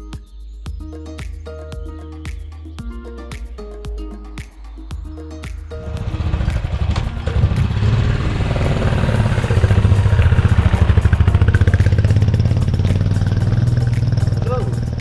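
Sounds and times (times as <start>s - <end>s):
motorcycle engine running: 5.8s - 15.0s.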